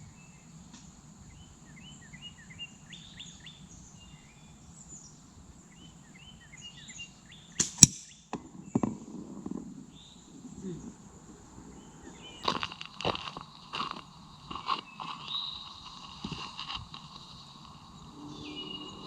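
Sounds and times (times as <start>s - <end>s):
small birds chirping: 0.0s - 19.0s
sharp gunshot cracks: 7.6s - 8.2s.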